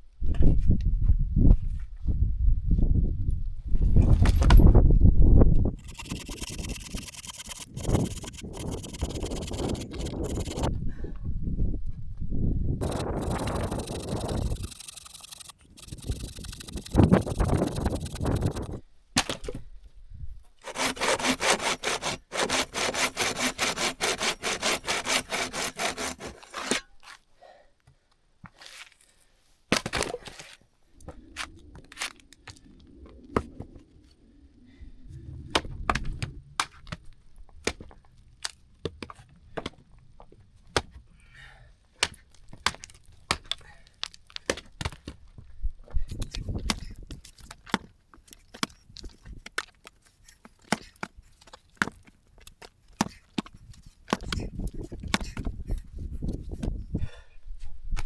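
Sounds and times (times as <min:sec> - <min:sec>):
saw cutting wood: 0:05.8 - 0:10.7, 0:12.8 - 0:18.8, 0:20.6 - 0:26.8, 0:53.0 - 0:53.2, 0:54.1 - 0:55.5.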